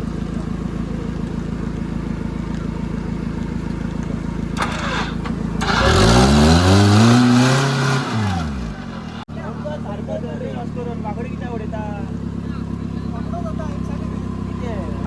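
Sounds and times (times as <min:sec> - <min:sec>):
engine running and revving: 0:00.0 - 0:09.3.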